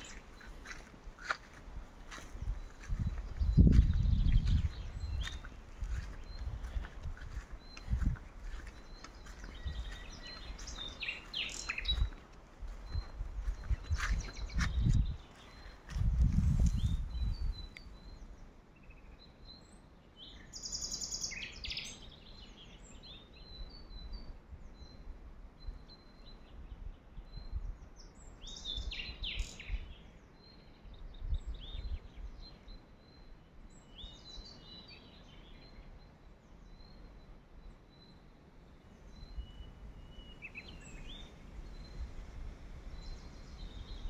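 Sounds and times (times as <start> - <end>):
songbirds chirping and singing: 0.0 - 44.0
low rumble on microphone: 2.0 - 18.4.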